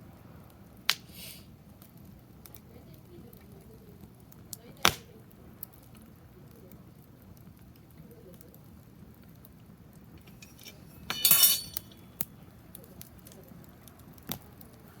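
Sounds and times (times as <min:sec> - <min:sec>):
wood fire crackling: 0:00.0 - 0:15.0
sharp ringing clink: 0:10.3 - 0:12.0.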